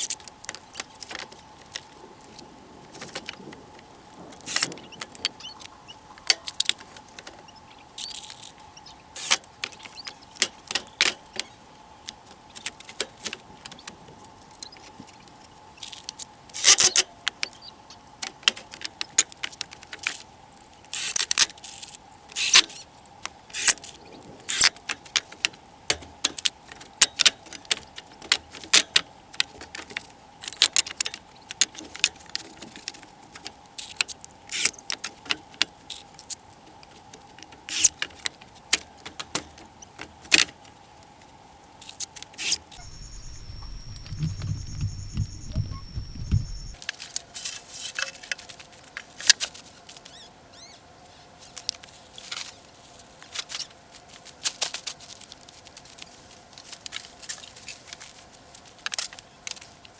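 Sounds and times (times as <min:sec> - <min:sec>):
faint steady hum: 0:42.8 - 0:46.8
sharp clinks and knocks: 0:42.8 - 0:46.8.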